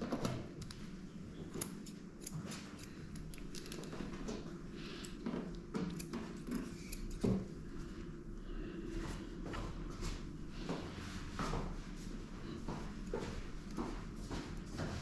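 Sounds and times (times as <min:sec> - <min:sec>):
scissors snipping fur: 0:01.5 - 0:03.9, 0:05.8 - 0:07.5.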